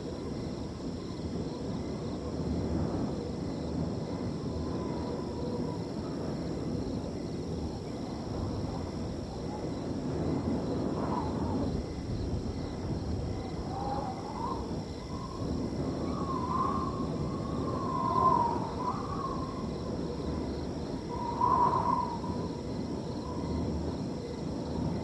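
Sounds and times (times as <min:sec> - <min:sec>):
crickets trilling: 0:00.0 - 0:25.0
wind whistling through field: 0:00.0 - 0:25.0.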